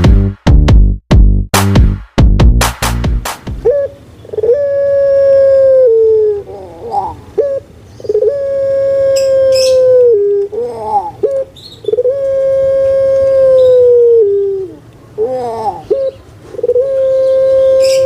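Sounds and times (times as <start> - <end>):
dove cooing: 3.6 - 18.0.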